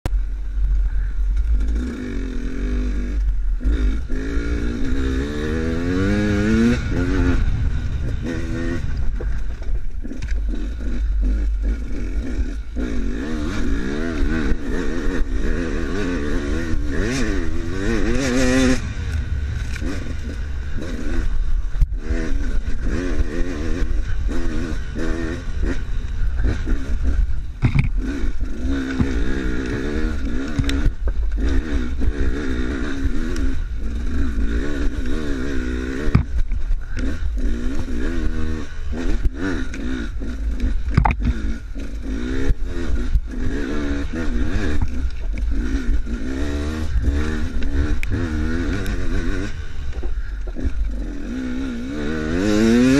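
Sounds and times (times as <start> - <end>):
dirt bike engine revving: 0.2 - 52.9.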